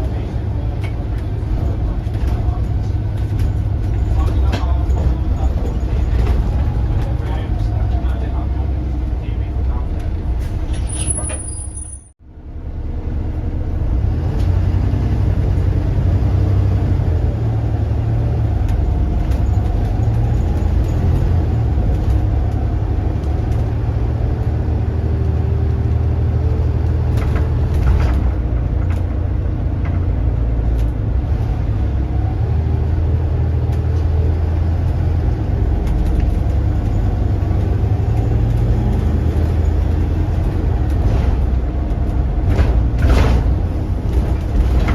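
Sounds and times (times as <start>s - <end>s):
bus diesel engine rumble: 0.0s - 44.9s.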